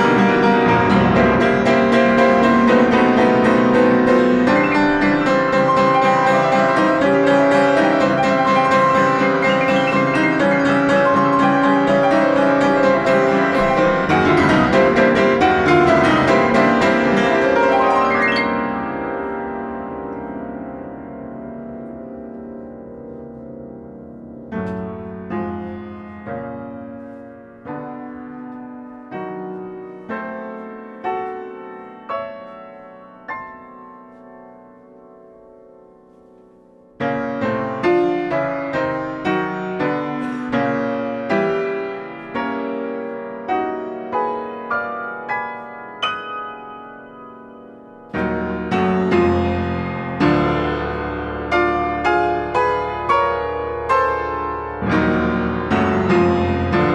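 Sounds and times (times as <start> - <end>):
solo piano: 0.0 - 56.9.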